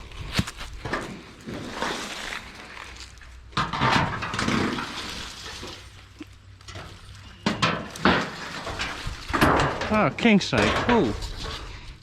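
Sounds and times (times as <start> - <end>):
metal clatter: 3.6 - 5.9, 6.6 - 11.8
sheet metal scraping and rattling: 6.7 - 12.0.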